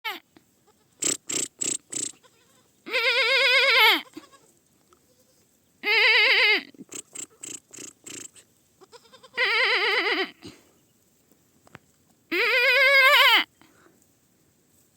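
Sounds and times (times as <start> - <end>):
goat kid bleating: 0.1 - 10.5, 12.3 - 13.5.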